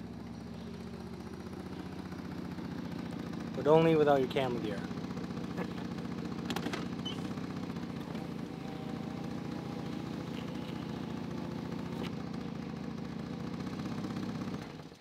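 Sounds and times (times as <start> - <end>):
car engine idling: 0.0 - 15.0
car window motor whine: 6.1 - 12.5.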